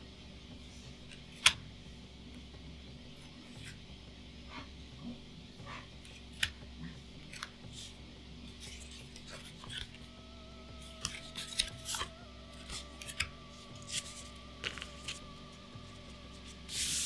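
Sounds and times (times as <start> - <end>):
trading cards being handled: 8.6 - 17.0.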